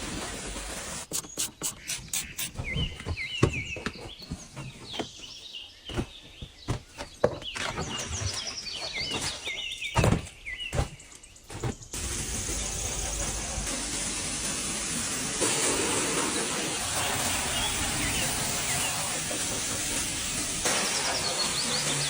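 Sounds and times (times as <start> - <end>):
small birds chirping: 1.1 - 13.1, 16.8 - 22.0.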